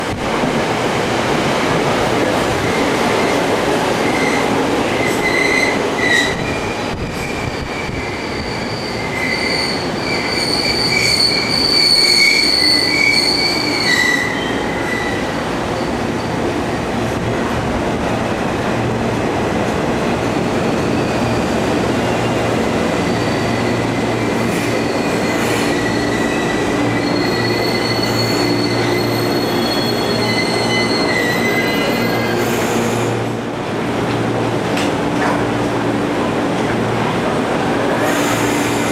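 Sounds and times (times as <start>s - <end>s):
train rumble and hum: 0.0s - 38.9s
train wheels squealing: 4.0s - 16.4s, 23.0s - 33.1s, 37.9s - 38.9s.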